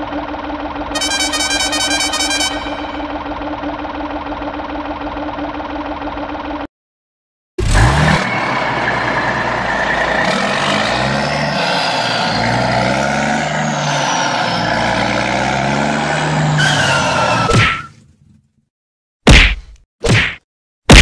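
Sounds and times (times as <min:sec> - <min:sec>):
truck engine running: 0:00.0 - 0:06.7, 0:07.7 - 0:17.5
falling squeal: 0:08.2 - 0:15.2, 0:16.0 - 0:17.9.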